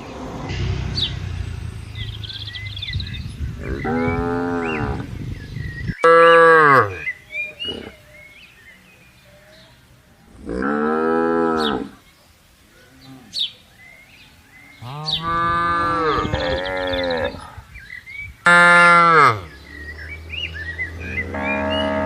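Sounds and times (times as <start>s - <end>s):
cattle mooing: 3.6s - 5.1s, 14.8s - 17.4s, 18.5s - 22.0s.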